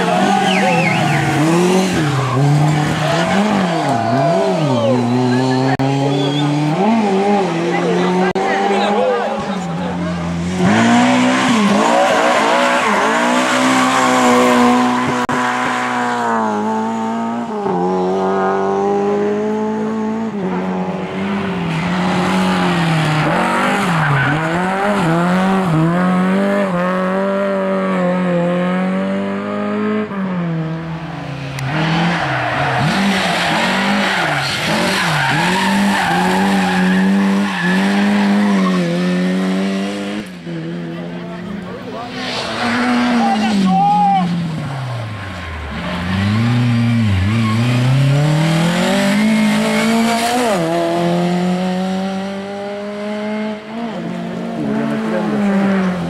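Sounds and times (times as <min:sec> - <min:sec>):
tyres squealing and skidding: 0:00.0 - 0:15.7, 0:21.1 - 0:26.0, 0:31.3 - 0:39.4, 0:41.7 - 0:50.8
rally car engines revving: 0:00.0 - 0:56.0.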